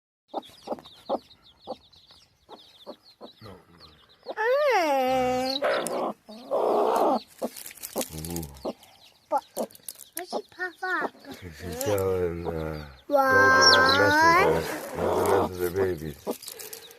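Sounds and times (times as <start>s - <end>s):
chicks peeping: 0.3s - 16.9s
hen clucking: 0.3s - 16.9s.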